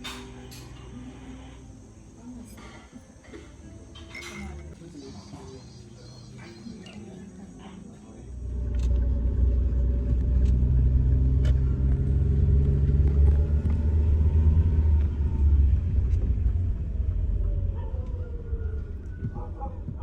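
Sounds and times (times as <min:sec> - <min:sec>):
car engine and road rumble: 0:08.2 - 0:20.0
engine tone sliding down: 0:08.4 - 0:19.2.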